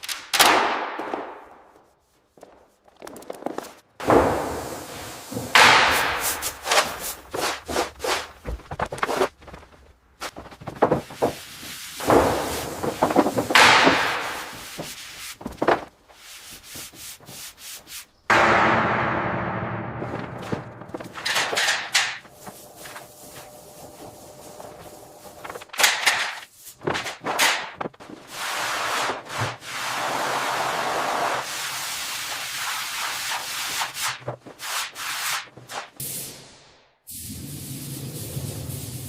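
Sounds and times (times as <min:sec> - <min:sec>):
steady hiss: 0:37.1 - 0:39.0.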